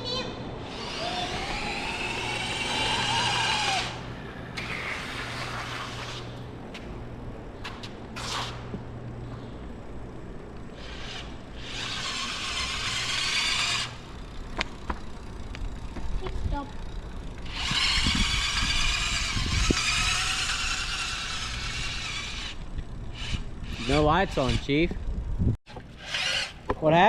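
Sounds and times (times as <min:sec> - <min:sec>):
steady low hum: 0:00.0 - 0:27.0
electric scooter motor whining: 0:00.1 - 0:26.8
wind rumble on microphone: 0:17.5 - 0:25.6.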